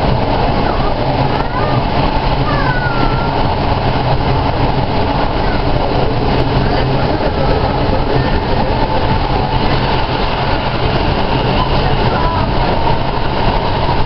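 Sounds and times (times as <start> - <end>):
low engine drone: 0.0 - 14.0
train wheel and rail noise: 0.0 - 14.0.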